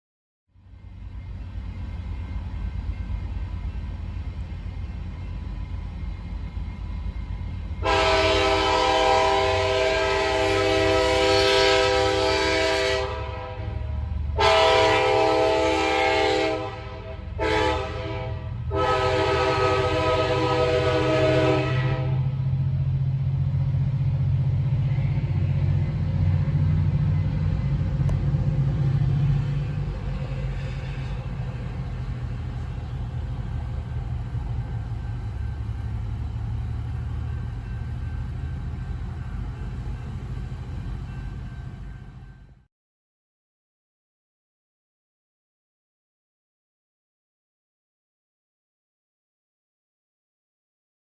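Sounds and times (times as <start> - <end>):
train rumble: 0.5 - 42.7
train horn blasts: 7.8 - 22.5.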